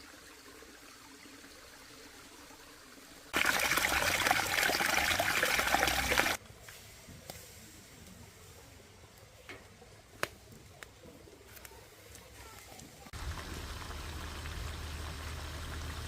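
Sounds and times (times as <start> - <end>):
water pouring: 0.0 - 6.4.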